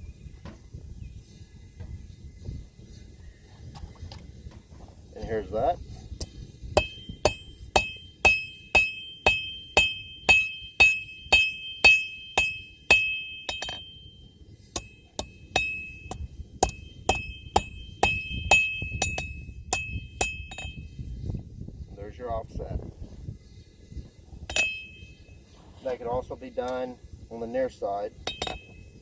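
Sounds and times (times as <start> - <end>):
hammer striking steel on anvil: 6.2 - 14.1, 14.7 - 20.8, 24.5 - 25.1, 28.2 - 28.8.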